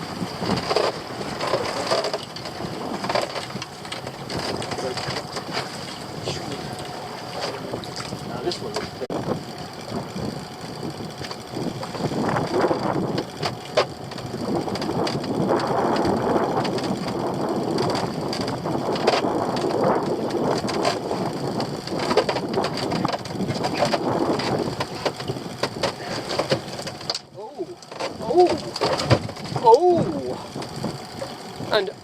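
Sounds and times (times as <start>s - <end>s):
sea noise: 0.0s - 32.0s
wind: 0.0s - 32.0s
rustling and scraping: 0.4s - 9.0s, 17.8s - 31.4s
sharp knocks and clatters: 21.9s - 27.3s, 27.9s - 29.7s.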